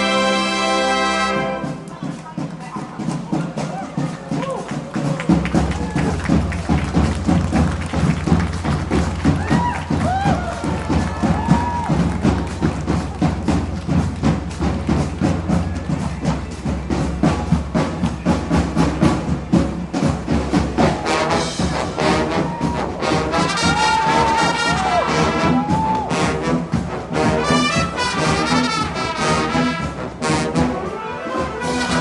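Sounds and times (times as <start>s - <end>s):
brass chords: 0.0s - 2.4s, 17.0s - 32.0s
marching band drums: 0.0s - 32.0s.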